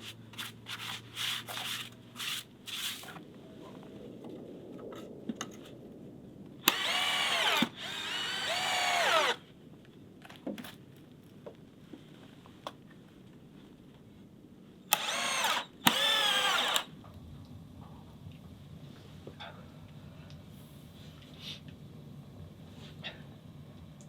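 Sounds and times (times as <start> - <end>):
power drill spinning: 0.4 - 3.1, 6.6 - 9.4, 14.9 - 16.9.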